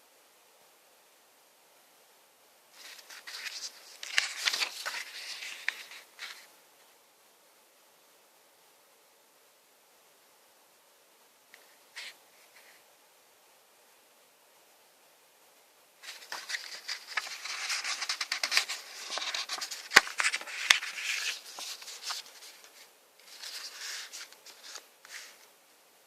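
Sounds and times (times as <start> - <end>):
packaging rustling: 2.8 - 6.4, 16.0 - 25.4.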